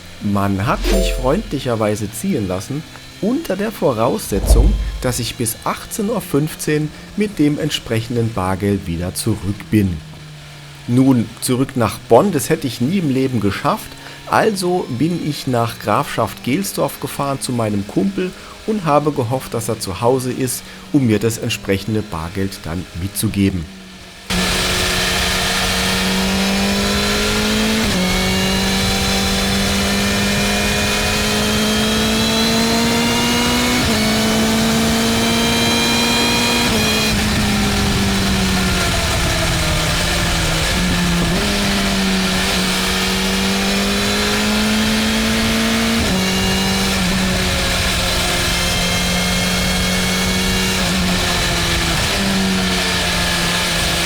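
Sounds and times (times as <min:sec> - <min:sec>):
steady rushing noise: 0:04.3 - 0:05.5.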